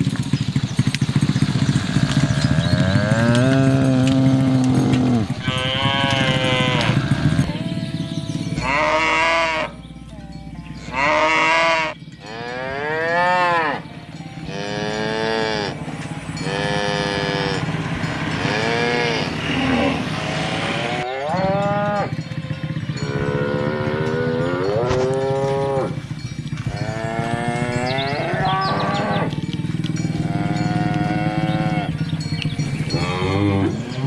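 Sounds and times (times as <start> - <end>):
cows mooing: 0.2 - 34.0
steady low hum: 1.5 - 21.0.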